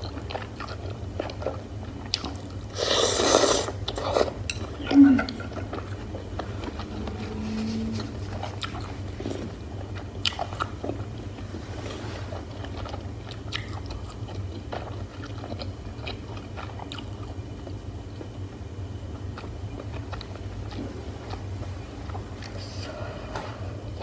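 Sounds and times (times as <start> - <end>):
low hum: 4.5 - 9.8
close chewing and biting: 5.2 - 11.4, 12.2 - 17.7.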